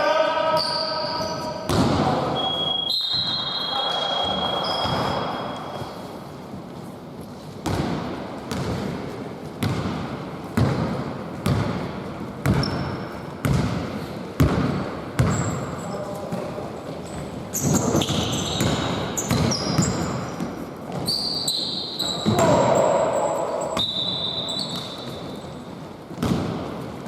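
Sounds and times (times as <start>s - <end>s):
sneakers squeaking on court: 0.6s - 1.8s, 2.4s - 6.2s, 12.4s - 13.8s, 15.2s - 26.8s
basketball bouncing on gym floor: 1.2s - 2.2s, 7.6s - 21.2s, 26.0s - 27.0s.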